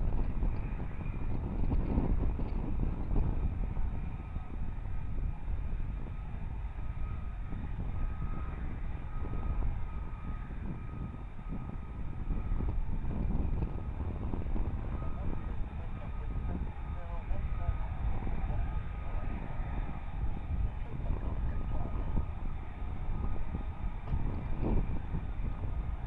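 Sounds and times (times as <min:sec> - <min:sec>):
faint engine whine: 0:00.0 - 0:26.0
jet engine rumbling: 0:08.0 - 0:26.0.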